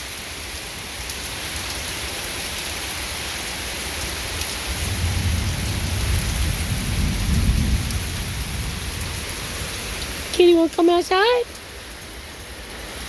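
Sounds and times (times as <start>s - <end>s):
heavy rain falling: 0.0s - 13.0s
thunder rumbling: 4.7s - 10.3s.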